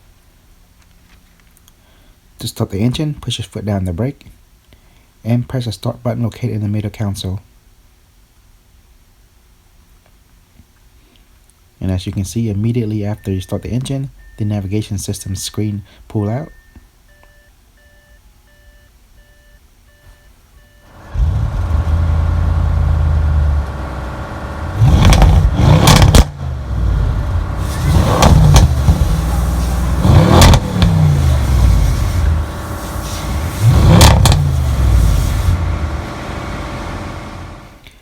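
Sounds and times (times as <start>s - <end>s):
car engine revving at idle: 20.9s - 37.8s.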